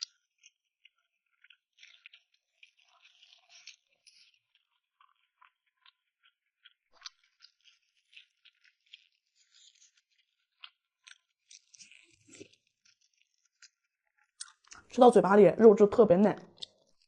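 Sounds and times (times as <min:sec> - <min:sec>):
person chewing and eating: 0:00.9 - 0:13.7, 0:14.3 - 0:14.9, 0:16.4 - 0:17.0.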